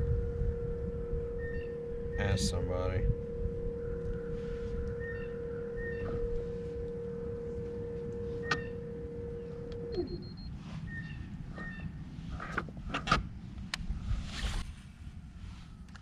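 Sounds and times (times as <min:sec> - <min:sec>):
electric motor whine: 0:00.0 - 0:12.6.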